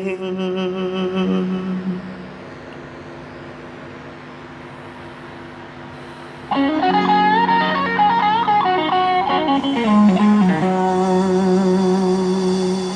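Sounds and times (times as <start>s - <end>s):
long held low notes: 0.0s - 3.1s, 6.5s - 12.9s
faint hum: 0.0s - 12.9s
guitar melody: 6.5s - 12.9s.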